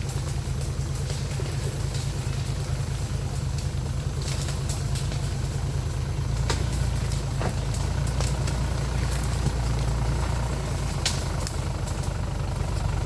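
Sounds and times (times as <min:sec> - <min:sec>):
vehicle engine running at low revs: 0:00.0 - 0:13.0.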